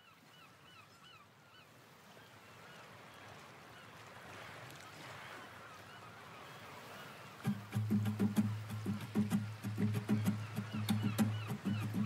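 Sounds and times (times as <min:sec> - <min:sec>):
honking bird calls: 0:07.0 - 0:12.0.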